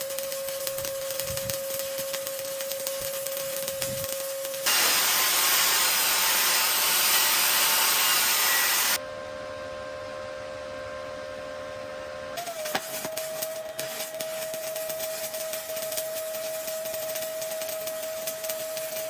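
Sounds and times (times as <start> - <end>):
welding arc crackling: 0.0 - 9.0, 12.4 - 19.0
high-pitched hum: 4.7 - 16.8.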